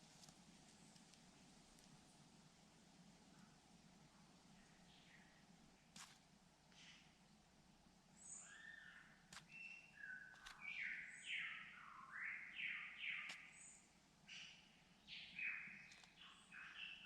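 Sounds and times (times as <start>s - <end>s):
high bird chirps: 8.3s - 17.0s
sharp clicks: 10.3s - 10.7s, 15.9s - 16.2s.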